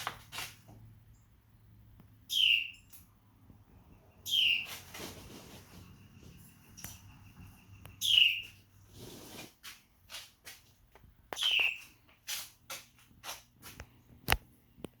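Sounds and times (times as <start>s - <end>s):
bird chirping: 2.2s - 8.8s, 11.3s - 12.1s.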